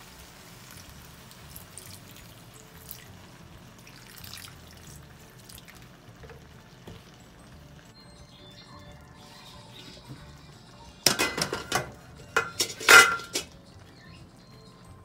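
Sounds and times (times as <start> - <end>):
water pouring into a wok: 0.0 - 7.3.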